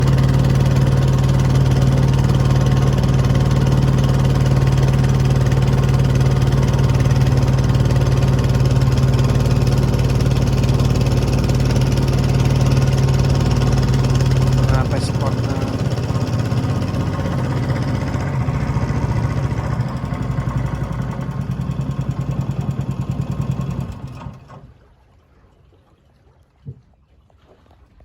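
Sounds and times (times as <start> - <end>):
engine running steadily: 0.0 - 24.9.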